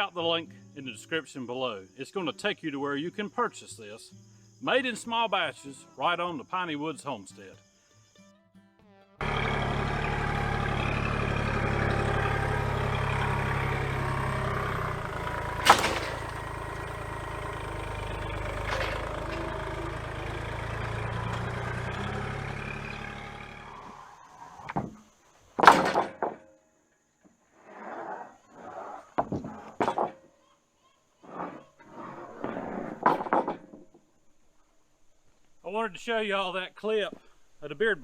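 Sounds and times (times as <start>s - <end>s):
knocks: 9.2s - 23.4s
engine running steadily: 9.2s - 24.3s.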